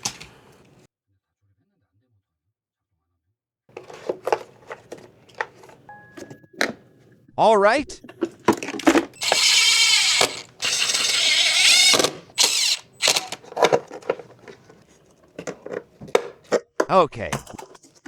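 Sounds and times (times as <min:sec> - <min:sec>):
parts clicking: 0:08.1 - 0:17.7
small power tool running: 0:08.8 - 0:14.8.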